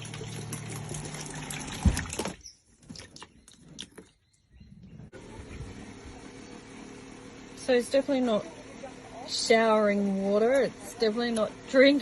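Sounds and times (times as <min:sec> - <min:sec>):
pump humming: 0:00.0 - 0:02.4
water pouring into container: 0:00.0 - 0:03.2.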